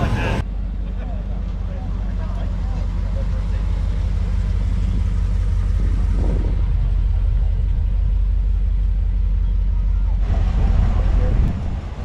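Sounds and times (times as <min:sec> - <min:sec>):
faint voices: 0:00.0 - 0:04.6, 0:08.9 - 0:12.0
car engine rumbling: 0:00.0 - 0:12.0.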